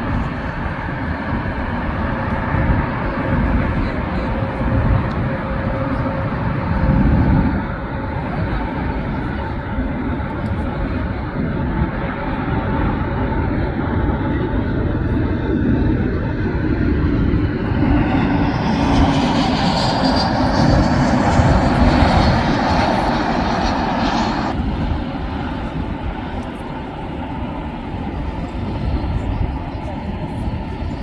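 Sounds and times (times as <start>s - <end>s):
jet engines passing: 0.0s - 31.0s.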